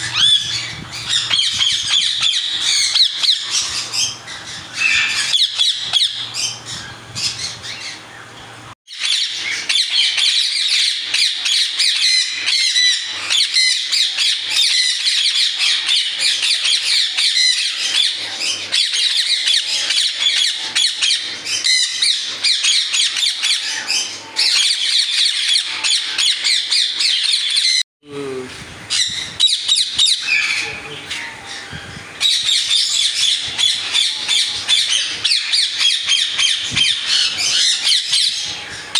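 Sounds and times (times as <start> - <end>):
parrots squawking and chirping: 0.0 - 8.2, 8.9 - 27.8, 28.9 - 38.9.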